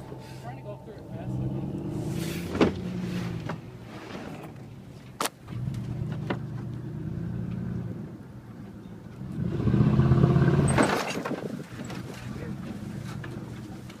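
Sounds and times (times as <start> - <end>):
pickup truck engine revving: 0.0 - 4.8, 9.2 - 10.8.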